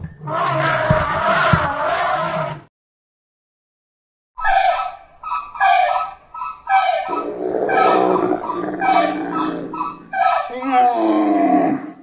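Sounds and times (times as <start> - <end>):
elephants trumpeting: 5.6 - 12.0.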